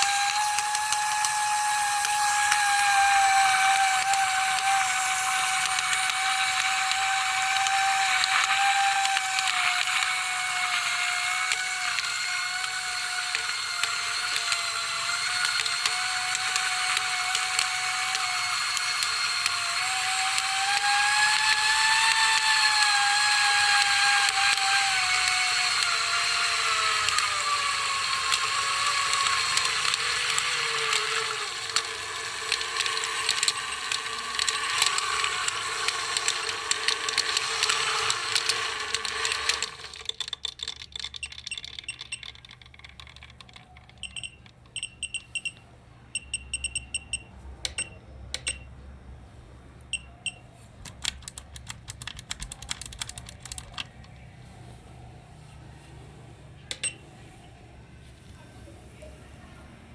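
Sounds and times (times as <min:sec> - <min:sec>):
electric toy motor whining: 0:00.0 - 0:44.3, 0:50.8 - 0:54.3
fast irregular clicking and crackling: 0:28.3 - 0:44.7, 0:50.8 - 0:54.4.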